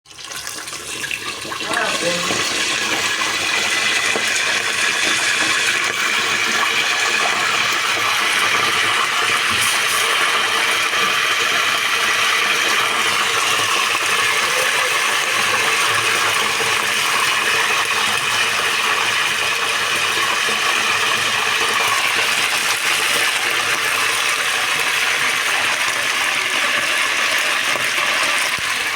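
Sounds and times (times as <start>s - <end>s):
chicken sizzling: 0.1s - 28.9s.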